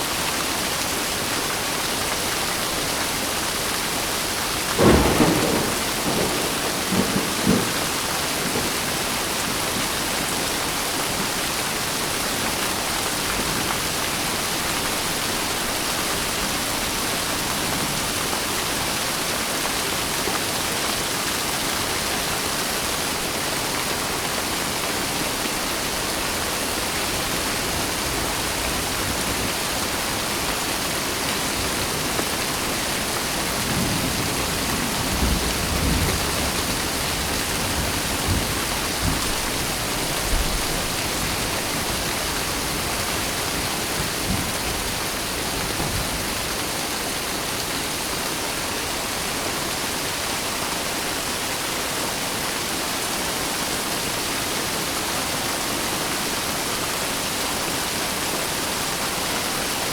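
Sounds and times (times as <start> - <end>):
steady rain hiss: 0.0 - 59.9
low thunder rumbling: 4.7 - 9.8.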